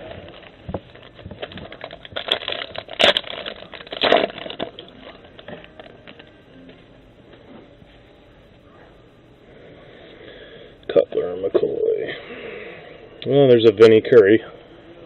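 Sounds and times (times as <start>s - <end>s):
packaging crinkling: 0.0s - 6.8s
packaging ripping: 0.2s - 6.3s.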